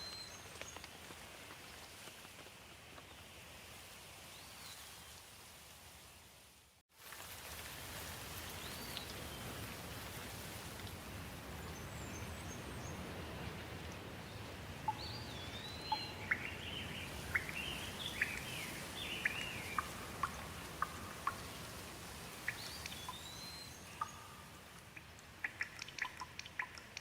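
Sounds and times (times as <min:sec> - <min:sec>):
rain falling: 0:07.0 - 0:27.0
songbird chirping and whistling: 0:14.9 - 0:21.5, 0:22.5 - 0:24.6.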